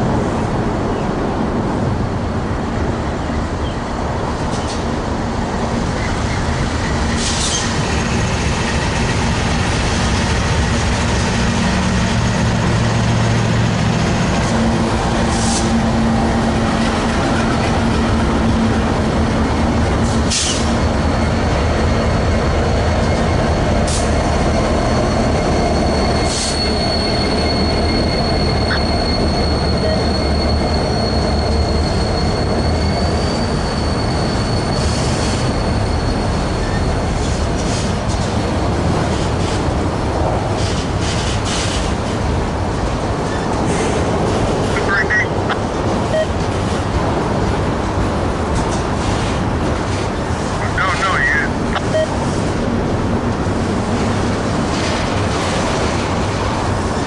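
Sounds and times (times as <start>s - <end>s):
train wheels rumbling on rail: 0.0s - 57.0s
high wheel squeal: 21.8s - 37.1s.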